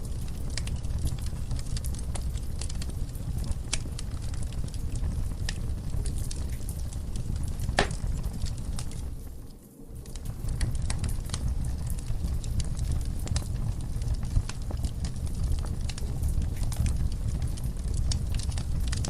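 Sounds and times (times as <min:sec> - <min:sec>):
logs crackling and popping: 0:00.0 - 0:19.0
low rumble of flames: 0:00.0 - 0:19.0.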